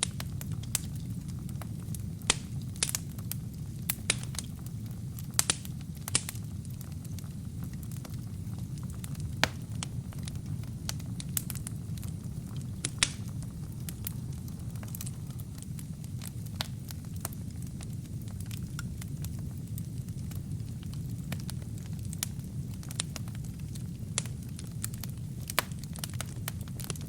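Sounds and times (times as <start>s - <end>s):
logs crackling and popping: 0.0s - 27.0s
low rumble of flames: 0.0s - 27.0s.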